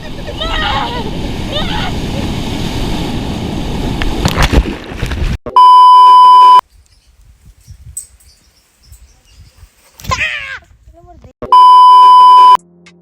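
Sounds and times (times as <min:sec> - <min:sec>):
outdoor noise on microphone: 0:00.0 - 0:12.6
high-pitched beep tone: 0:05.5 - 0:06.6, 0:11.4 - 0:12.6.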